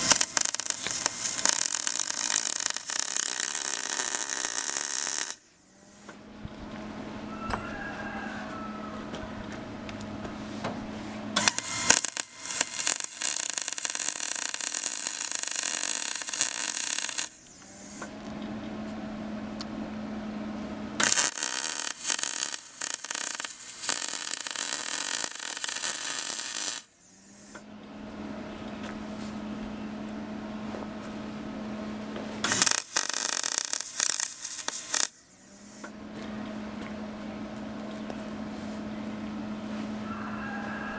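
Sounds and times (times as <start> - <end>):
arc welding crackling sizzle: 0.0 - 5.4, 11.4 - 18.0, 21.0 - 26.9, 32.4 - 35.8
steady low hum: 0.0 - 7.4, 8.2 - 40.2.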